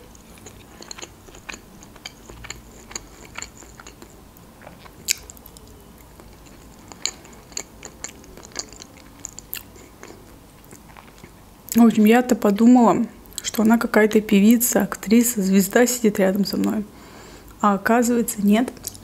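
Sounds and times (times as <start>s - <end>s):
person chewing with mouth clicks: 0.0s - 11.8s, 18.7s - 19.0s.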